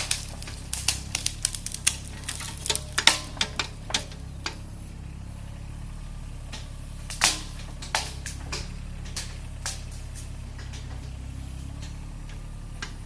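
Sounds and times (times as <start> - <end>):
sharp cracks and clicks: 0.0 - 13.0
steady low hum: 0.0 - 13.0.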